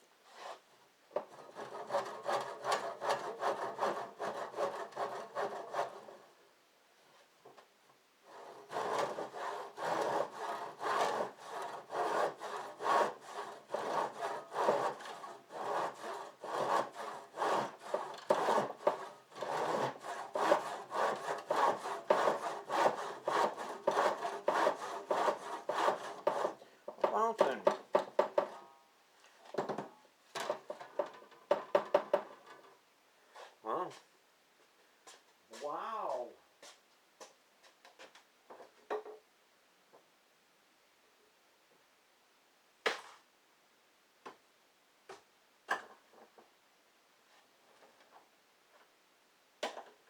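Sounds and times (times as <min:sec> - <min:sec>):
hand saw rasping: 0:01.2 - 0:06.2, 0:08.3 - 0:28.6.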